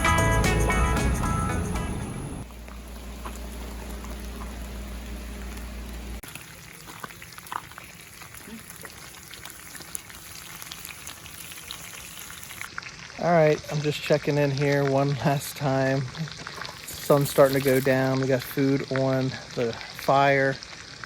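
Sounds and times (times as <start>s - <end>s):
guitar music: 0.0s - 2.4s
food frying with pops and crackles: 2.4s - 21.0s.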